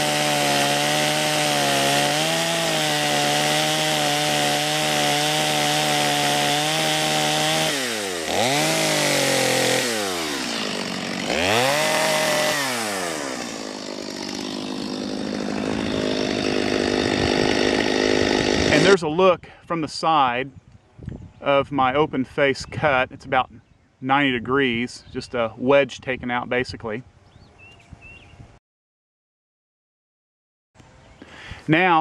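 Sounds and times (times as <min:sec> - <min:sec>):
chainsaw cutting tree: 0:00.0 - 0:19.0.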